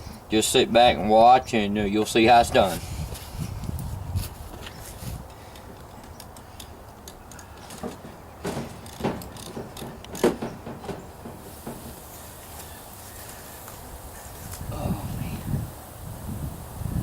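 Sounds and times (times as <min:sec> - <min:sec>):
faint steady background noise: 0:00.0 - 0:17.0
sharp knocks and clicks: 0:07.0 - 0:12.0.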